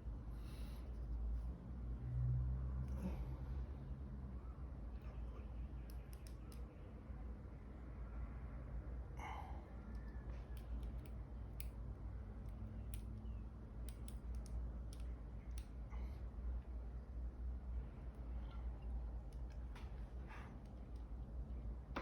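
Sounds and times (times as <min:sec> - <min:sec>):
low steady hum: 0:00.0 - 0:22.0
metal tools clicking on watch: 0:13.8 - 0:15.8.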